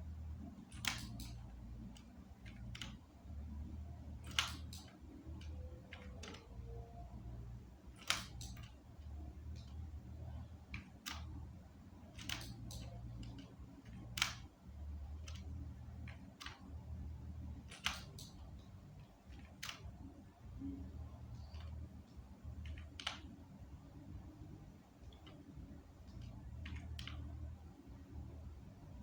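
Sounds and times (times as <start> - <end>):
low steady hum: 0.0 - 29.0
mouse and keyboard clicks: 0.6 - 3.0, 4.2 - 6.8, 7.9 - 11.4, 12.0 - 14.5, 15.1 - 16.8, 17.5 - 20.0, 21.3 - 23.5, 25.0 - 27.5.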